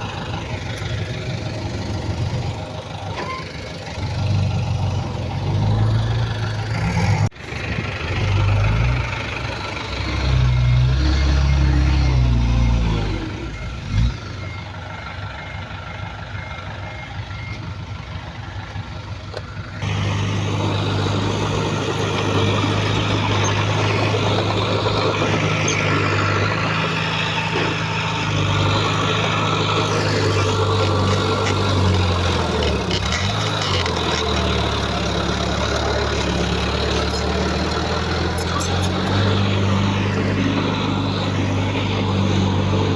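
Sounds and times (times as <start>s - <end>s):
heavy diesel engines working: 0.0s - 42.9s
reversing alarm beeping: 9.9s - 18.4s.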